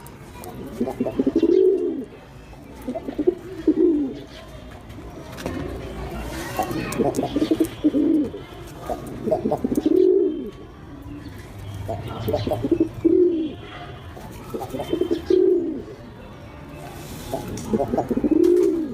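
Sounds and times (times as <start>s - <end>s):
pigeons cooing: 0.4s - 2.2s, 2.8s - 4.4s, 6.6s - 10.6s, 11.9s - 13.7s, 14.5s - 16.0s, 17.3s - 18.9s.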